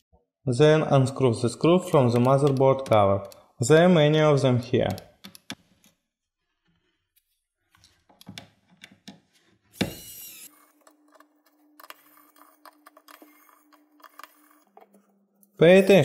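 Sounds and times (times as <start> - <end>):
screwdriver clicks and scrapes: 9.8 - 15.6.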